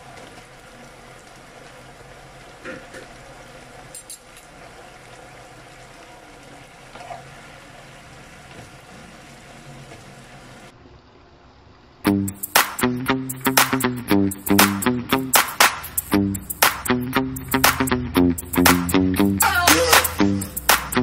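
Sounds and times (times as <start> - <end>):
food sizzling in a wok: 0.0 - 10.7.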